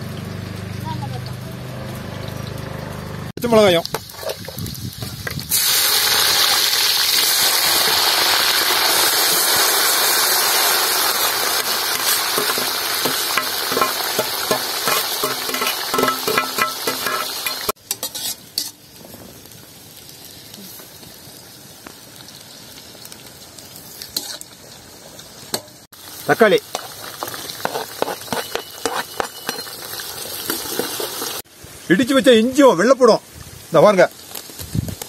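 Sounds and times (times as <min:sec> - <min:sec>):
chillies sizzling in hot oil: 0:00.0 - 0:35.0.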